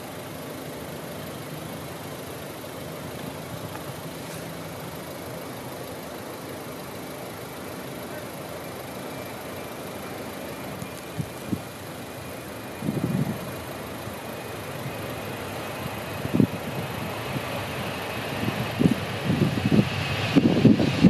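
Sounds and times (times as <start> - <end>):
engine running steadily: 0.0 - 21.0
wind hiss: 0.0 - 21.0.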